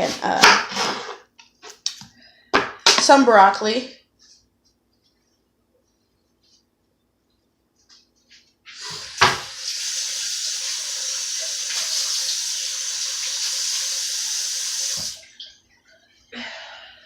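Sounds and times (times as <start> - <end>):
tap running into a sink: 8.8 - 12.2, 14.6 - 15.2.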